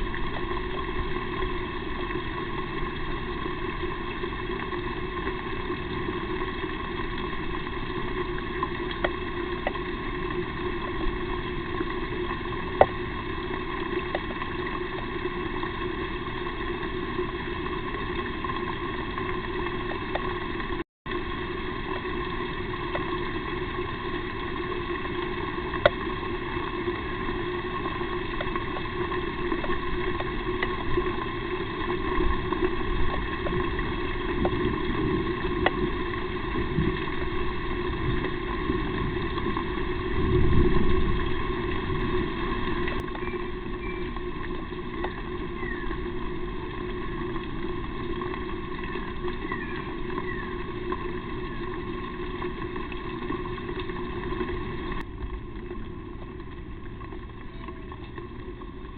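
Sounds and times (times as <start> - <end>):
microphone hiss and hum: 0.0 - 58.9.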